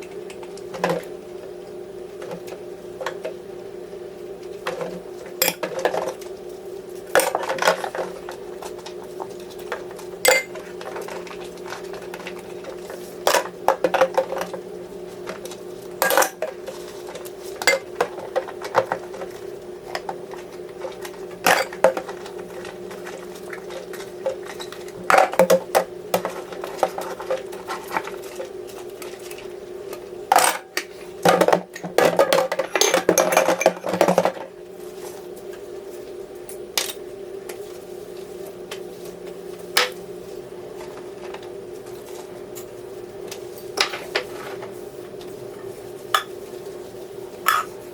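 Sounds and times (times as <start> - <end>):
steady low hum: 0.0 - 47.9
dishes and pans clattering: 10.2 - 11.2, 16.0 - 16.6, 17.6 - 19.0, 31.3 - 34.4, 47.4 - 47.8.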